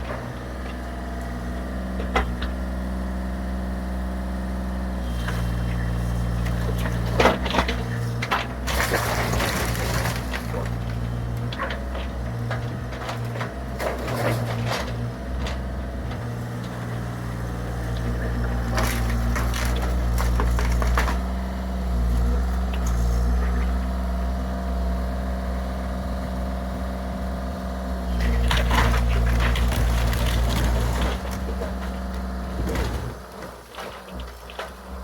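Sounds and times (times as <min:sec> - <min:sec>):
diesel engine running: 0:00.0 - 0:35.0
wood cracking and crunching: 0:05.2 - 0:24.0, 0:28.1 - 0:35.0.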